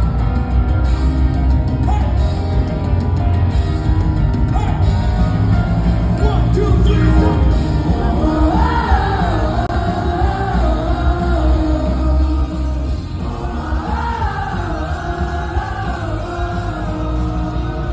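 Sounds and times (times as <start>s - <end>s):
live rock band playing: 0.0s - 17.9s
person singing: 6.2s - 17.9s.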